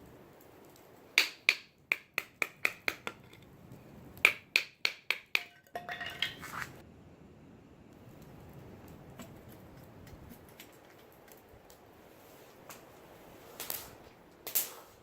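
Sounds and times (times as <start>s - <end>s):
sharp snaps: 0.4s - 3.1s, 13.6s - 15.0s.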